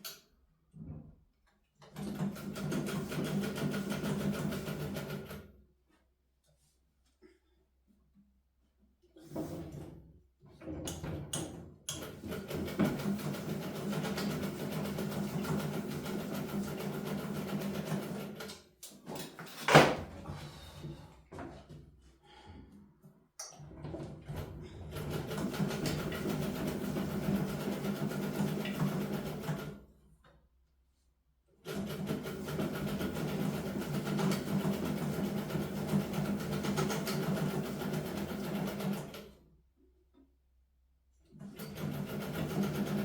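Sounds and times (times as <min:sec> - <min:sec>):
sewing machine stitching: 0:01.8 - 0:05.4, 0:12.0 - 0:18.5, 0:24.3 - 0:29.8, 0:31.6 - 0:39.3, 0:41.3 - 0:43.0.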